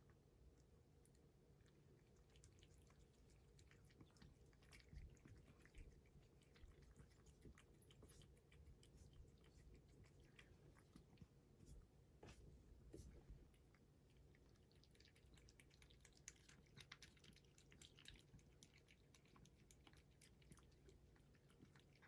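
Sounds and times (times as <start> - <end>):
cat chewing food: 0.0 - 22.0.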